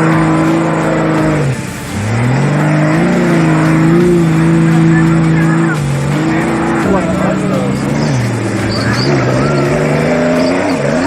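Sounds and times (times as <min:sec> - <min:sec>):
engine running at high revs: 0:00.0 - 0:11.0.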